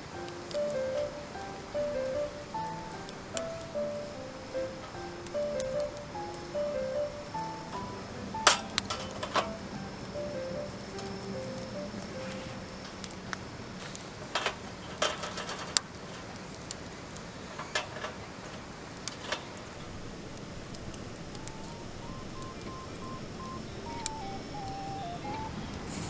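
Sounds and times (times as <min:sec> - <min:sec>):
faint simple background melody: 0:00.0 - 0:13.1, 0:21.0 - 0:25.9
campfire crackling and popping: 0:00.0 - 0:25.9.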